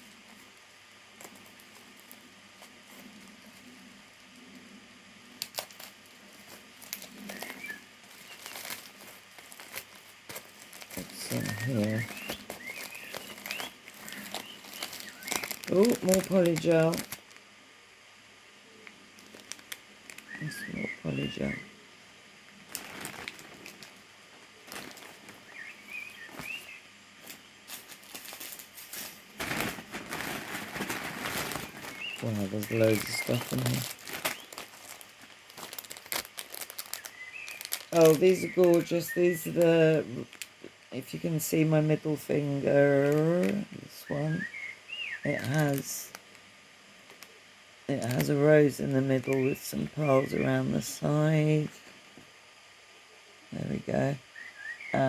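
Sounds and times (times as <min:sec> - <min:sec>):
plastic packaging crinkling: 0:00.0 - 0:17.5, 0:18.8 - 0:21.6, 0:22.5 - 0:41.5, 0:42.2 - 0:44.6, 0:45.2 - 0:50.4
faint high chirps: 0:20.1 - 0:21.8.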